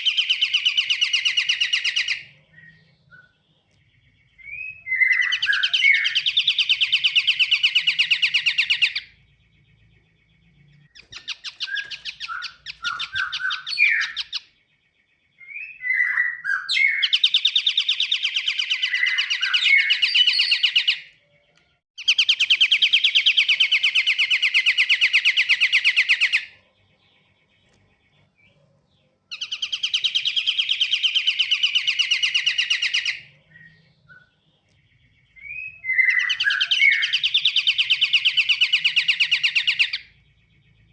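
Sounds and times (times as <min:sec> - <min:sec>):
bird singing rapid trills: 0:00.0 - 0:40.9
short bird chirps: 0:00.0 - 0:40.9.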